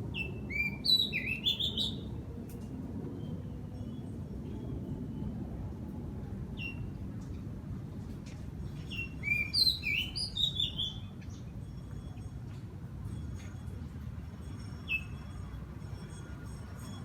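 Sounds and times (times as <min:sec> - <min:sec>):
small birds chirping: 0:00.2 - 0:02.1, 0:08.9 - 0:11.5.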